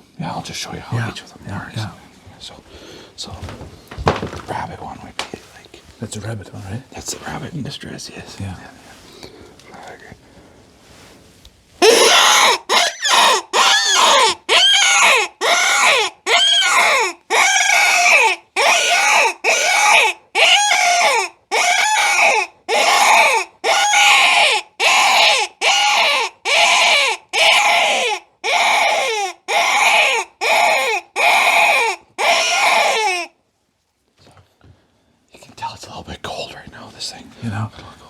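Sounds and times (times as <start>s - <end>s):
predator call squalls: 11.8s - 33.3s.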